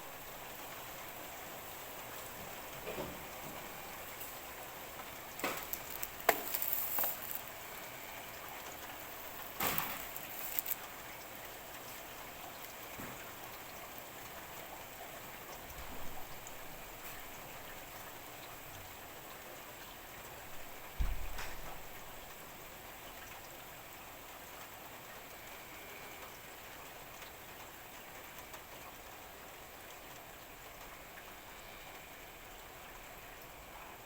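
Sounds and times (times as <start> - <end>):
steady rain: 0.0 - 34.0
sharp raindrop hits: 5.1 - 7.8, 9.3 - 11.0.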